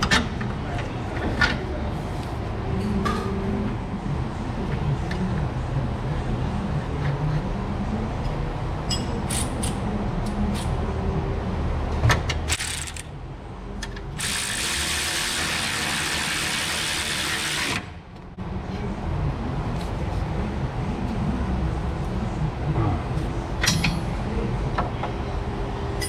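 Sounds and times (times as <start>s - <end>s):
ratchet clicking: 12.5s - 13.1s.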